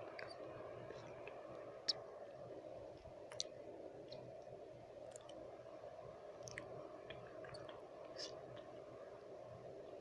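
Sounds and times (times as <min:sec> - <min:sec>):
low background noise: 0:00.0 - 0:10.0
wet lip and tongue clicks: 0:03.3 - 0:04.3, 0:06.4 - 0:08.4.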